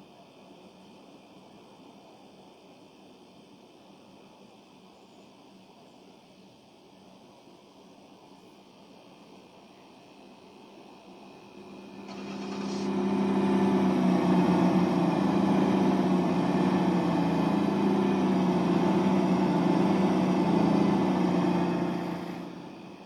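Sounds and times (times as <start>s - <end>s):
diesel trains droning past: 11.0s - 23.0s.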